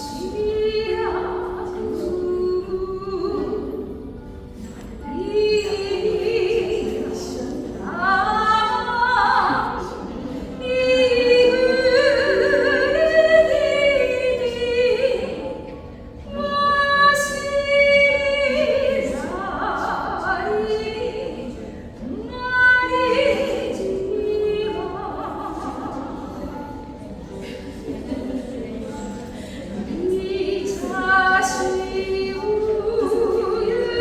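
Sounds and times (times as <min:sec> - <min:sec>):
person singing with vibrato: 0:05.0 - 0:27.6.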